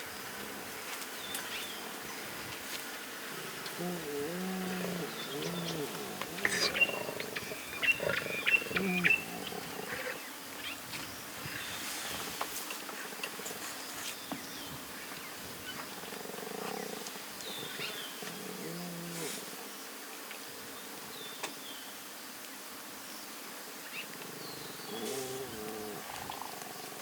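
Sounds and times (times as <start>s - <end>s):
lions calling: 3.3s - 10.2s
bird chirps: 5.1s - 10.1s.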